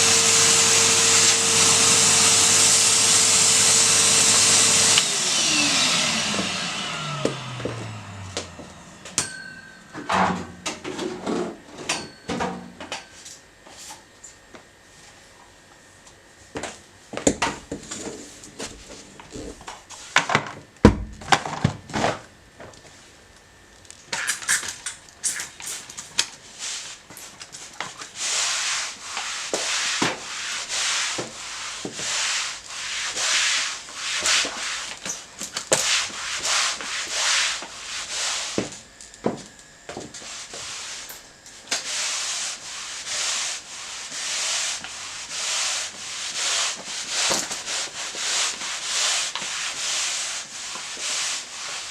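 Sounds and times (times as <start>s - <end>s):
mop swishing on floor: 0.7s - 9.9s, 25.7s - 51.9s.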